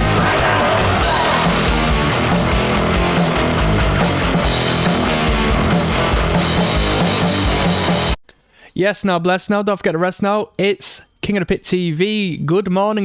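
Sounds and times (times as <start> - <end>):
distorted electric guitar: 0.0 - 8.2
rock drums: 0.0 - 8.2.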